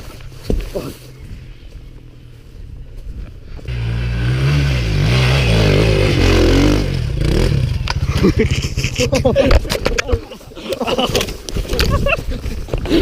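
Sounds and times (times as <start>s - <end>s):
dirt bike engine revving: 3.7s - 9.3s.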